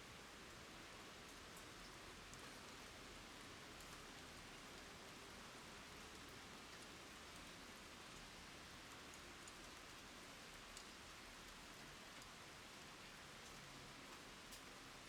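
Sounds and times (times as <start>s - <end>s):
rain falling on ground: 0.1s - 15.0s.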